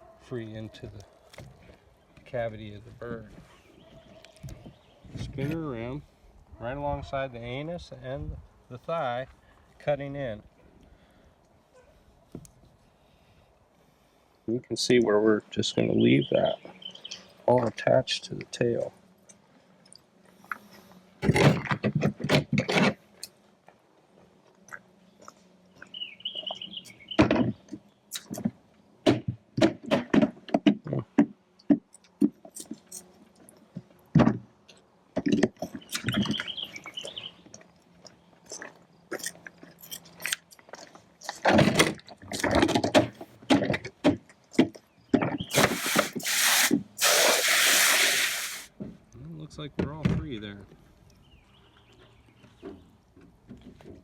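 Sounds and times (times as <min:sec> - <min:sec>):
loud hiss: 0:45.5 - 0:48.7.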